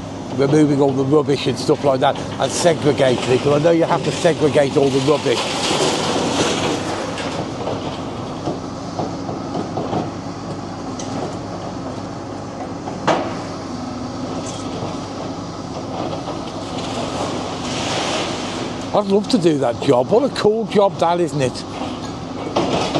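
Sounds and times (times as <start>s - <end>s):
excavator diesel engine running: 0.0s - 22.9s
knocks and clank on concrete: 21.8s - 22.9s.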